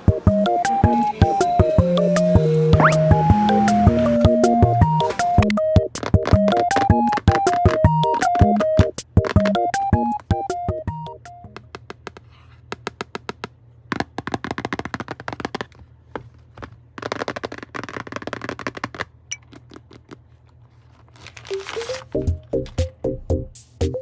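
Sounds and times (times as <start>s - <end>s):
packaging rustling: 0.8s - 22.7s
small clicks and taps: 5.0s - 17.2s.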